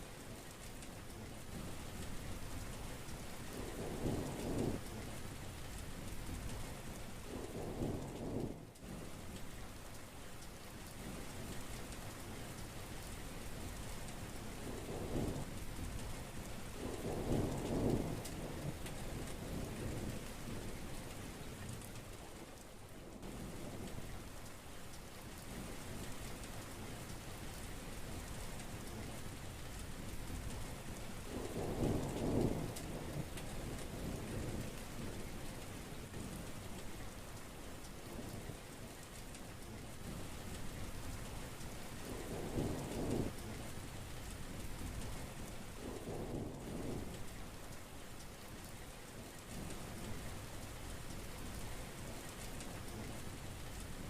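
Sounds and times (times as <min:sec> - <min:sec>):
heavy rain falling: 0:00.0 - 0:54.0
thunder rumbling: 0:31.2 - 0:35.4, 0:42.0 - 0:43.7, 0:45.8 - 0:47.5.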